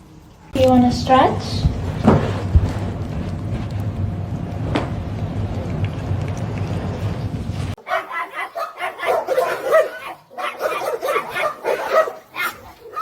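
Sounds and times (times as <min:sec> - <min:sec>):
steady low rumble: 0:00.8 - 0:07.8
dog yipping and barking: 0:07.8 - 0:13.0.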